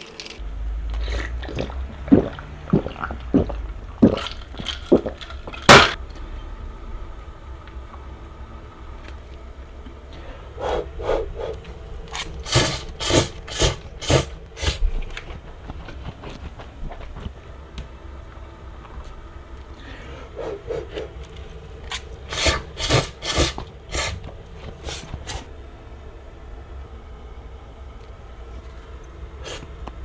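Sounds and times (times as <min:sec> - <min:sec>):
cooking utensil scraping: 0:21.9 - 0:25.5.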